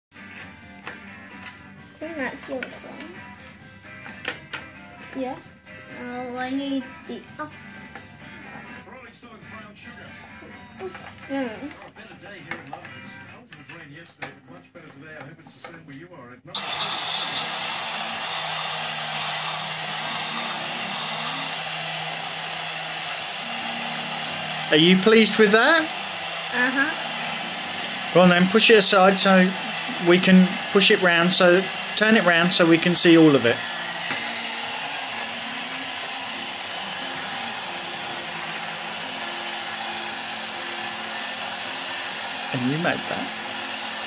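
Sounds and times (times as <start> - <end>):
small electric motor whirring: 16.6 - 44.0.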